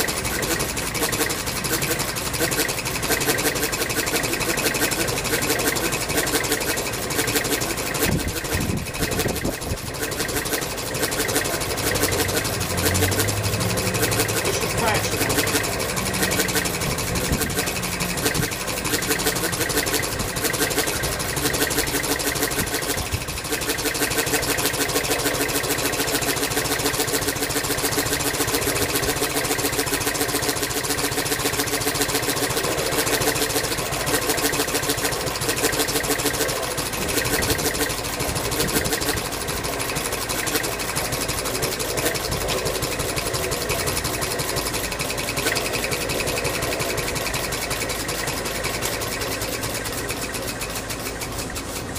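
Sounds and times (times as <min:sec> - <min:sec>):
engine running with rapid beat: 0:00.0 - 0:51.9.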